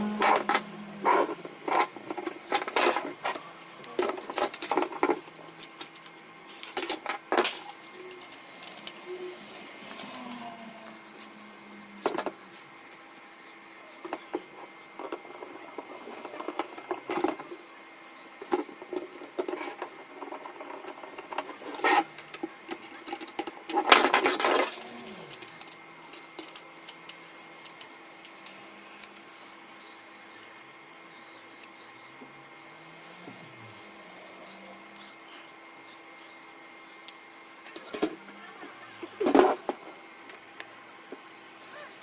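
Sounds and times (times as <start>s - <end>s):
faint steady hum: 0.0s - 42.0s
plastic and metal clicks and scrapes: 0.1s - 9.1s, 18.4s - 29.8s.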